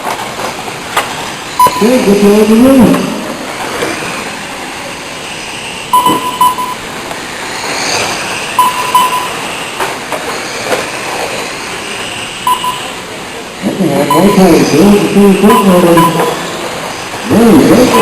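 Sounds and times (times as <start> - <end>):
race truck engines running: 0.0 - 18.0
short beeps: 1.6 - 2.1, 5.9 - 6.8, 8.6 - 9.5, 12.4 - 13.0, 14.0 - 16.5, 17.7 - 18.0.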